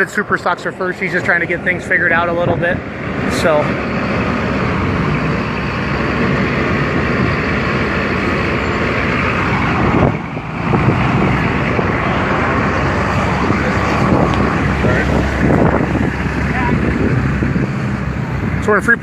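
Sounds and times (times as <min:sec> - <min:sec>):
tractor engine running loudly: 0:00.0 - 0:19.0.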